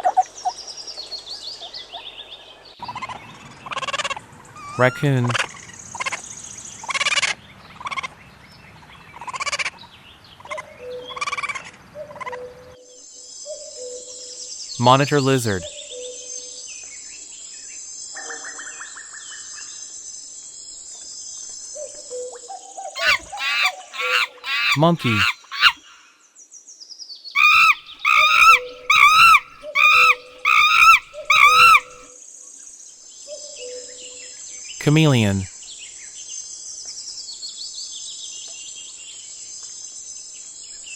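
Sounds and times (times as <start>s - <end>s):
monkey calling: 4.6s - 5.4s, 23.0s - 26.0s, 27.4s - 32.1s
raccoon chittering: 23.0s - 26.0s, 27.4s - 32.0s.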